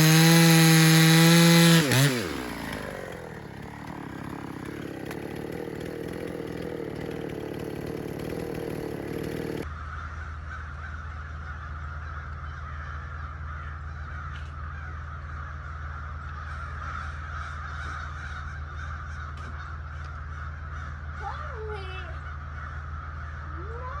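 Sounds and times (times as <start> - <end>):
chainsaw running: 0.0 - 9.7
bird calls: 9.6 - 24.0.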